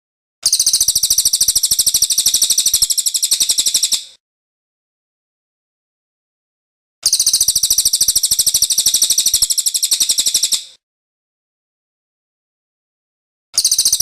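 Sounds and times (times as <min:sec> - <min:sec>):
bird singing rolling trill: 0:00.5 - 0:04.1, 0:07.1 - 0:10.7.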